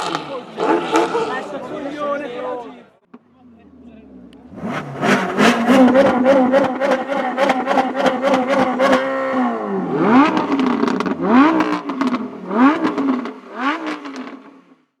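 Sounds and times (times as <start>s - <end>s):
sports car engine revving: 3.4s - 14.7s.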